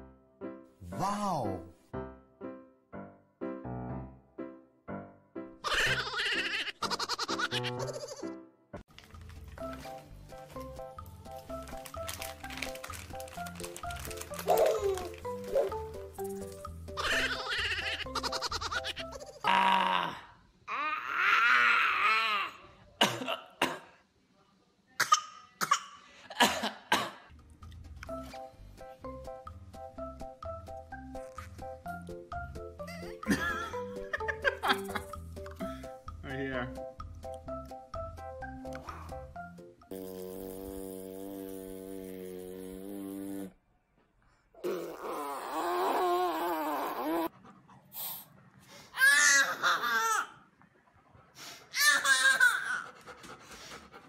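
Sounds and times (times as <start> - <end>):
baby squealing laughter: 5.6 - 8.3, 14.5 - 15.8, 17.0 - 19.4, 49.0 - 50.4, 51.8 - 52.8.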